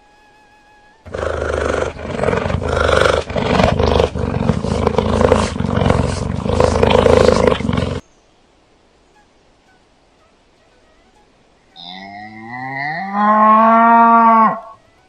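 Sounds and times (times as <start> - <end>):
large animal roaring: 1.1 - 8.0, 11.8 - 14.8.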